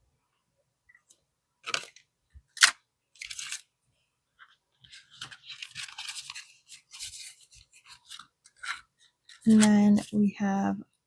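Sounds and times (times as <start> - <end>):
paper and plastic rustling: 2.6 - 3.7, 4.4 - 10.3.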